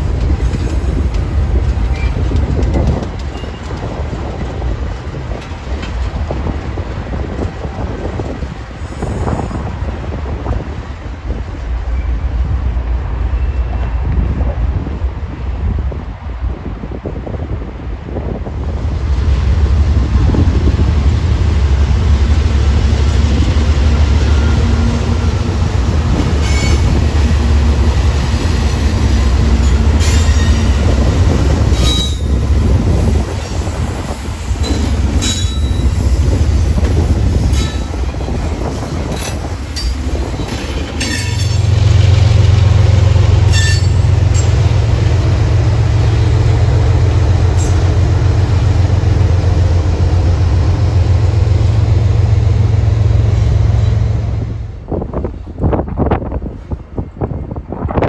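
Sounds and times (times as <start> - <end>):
train wheels clicking over rail joints: 0.0 - 9.8, 23.7 - 54.2
diesel locomotive rumbling: 0.0 - 58.0
high wheel squeals: 43.5 - 44.5.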